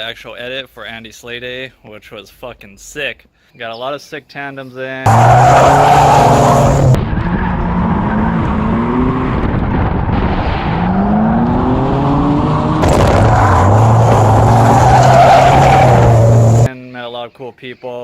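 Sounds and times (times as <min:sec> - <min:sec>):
tyres squealing: 0:05.1 - 0:07.0, 0:13.2 - 0:16.7
car engines revving: 0:05.1 - 0:16.7.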